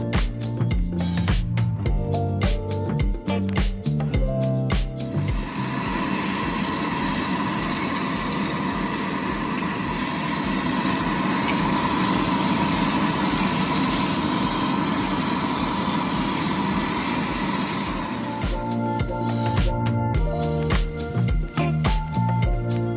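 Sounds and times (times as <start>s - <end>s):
coffee roaster whirring: 5.0s - 18.8s.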